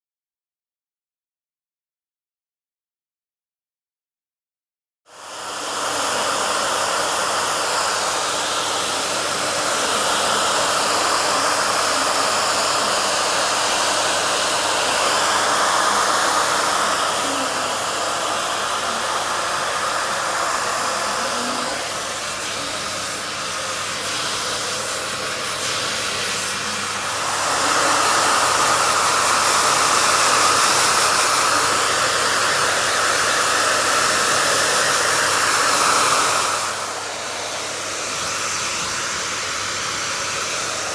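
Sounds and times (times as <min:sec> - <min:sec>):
hair dryer blowing: 0:05.1 - 0:40.9.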